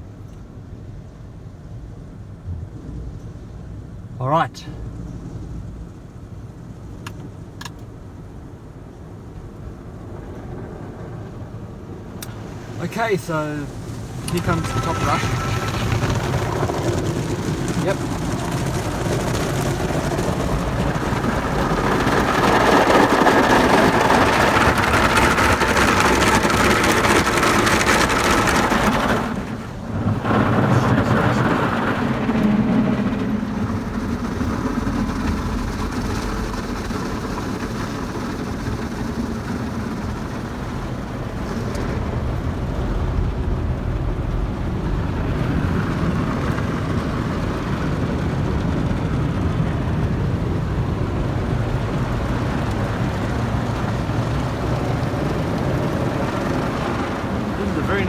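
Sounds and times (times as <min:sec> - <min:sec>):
car wash brushes scrubbing car: 0:12.2 - 0:58.0.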